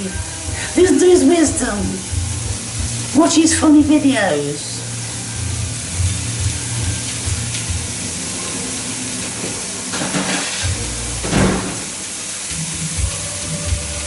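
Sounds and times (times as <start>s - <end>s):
steaks sizzling in a frying pan: 0.0s - 14.0s.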